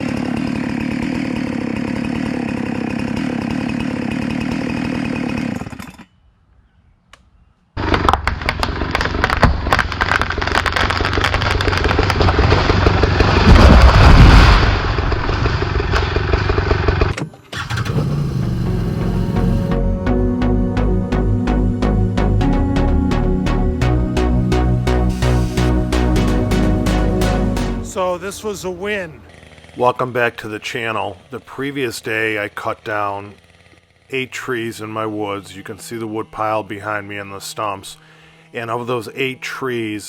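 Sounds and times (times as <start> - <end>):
chainsaw running: 0.0 - 6.1, 7.8 - 40.0
wood cracking and snapping: 7.8 - 17.2
music: 18.4 - 28.0.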